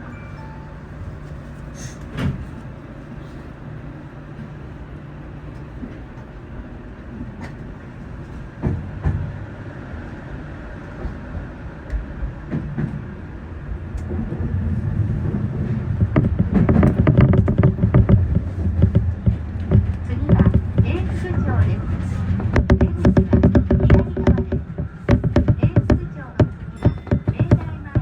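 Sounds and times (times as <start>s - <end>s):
train wheels rumbling: 0.0s - 28.0s
short knocks: 15.2s - 21.7s, 22.4s - 28.0s.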